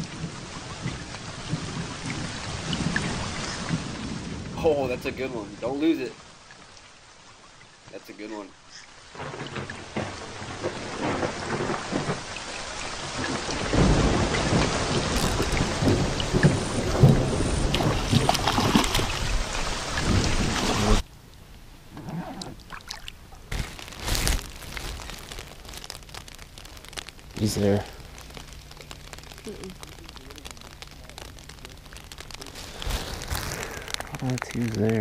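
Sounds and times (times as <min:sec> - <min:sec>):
rain pattering on water and boat: 0:00.0 - 0:35.0
heavy low rumble: 0:23.2 - 0:35.0.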